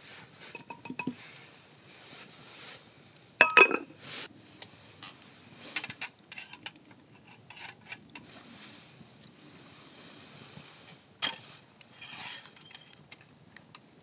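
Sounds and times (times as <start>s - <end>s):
utensils tapping and clicking: 0.5s - 1.2s
metal cookware clinking: 3.4s - 3.9s.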